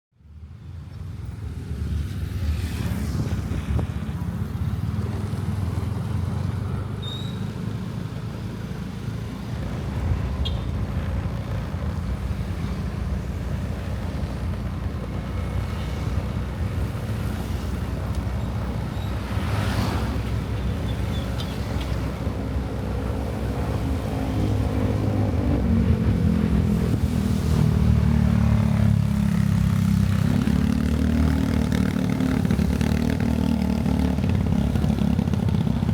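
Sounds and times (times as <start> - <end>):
road and wind noise: 0.1 - 35.9
motorcycle engine accelerating: 23.5 - 35.9.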